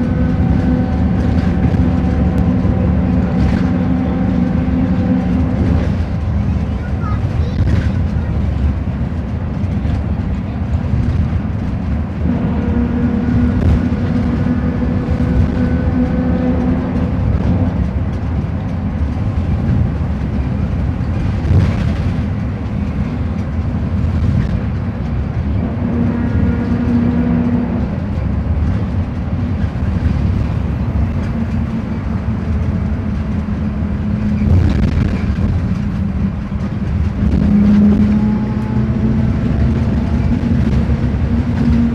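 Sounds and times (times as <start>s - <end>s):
bus diesel engine rumbling: 0.0s - 41.9s.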